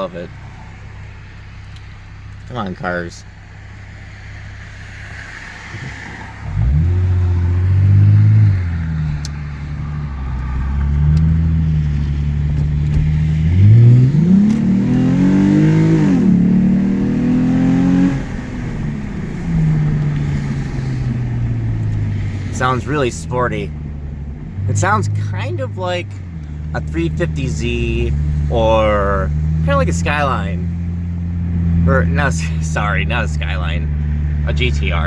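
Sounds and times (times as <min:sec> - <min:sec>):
car engine accelerating hard: 0:00.0 - 0:35.0.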